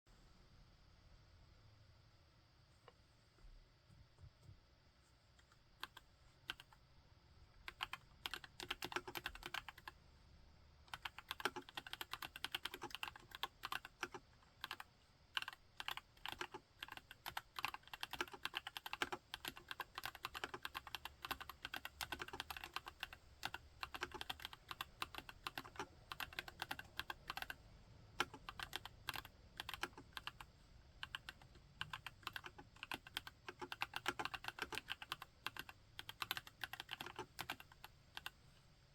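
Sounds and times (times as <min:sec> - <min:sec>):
mechanical keyboard typing: 0:05.8 - 0:06.8, 0:07.7 - 0:10.0, 0:10.9 - 0:27.6, 0:28.2 - 0:38.4.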